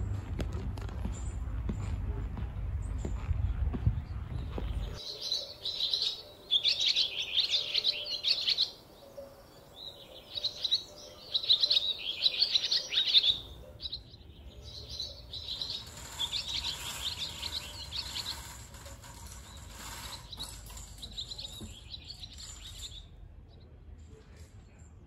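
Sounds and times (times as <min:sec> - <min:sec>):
faint low rumble: 0:00.0 - 0:05.0
small birds chirping and twittering: 0:00.0 - 0:25.0.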